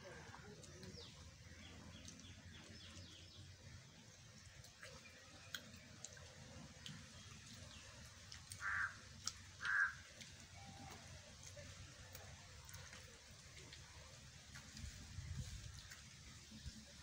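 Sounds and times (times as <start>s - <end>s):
chewing and lip-smacking: 4.4s - 13.9s.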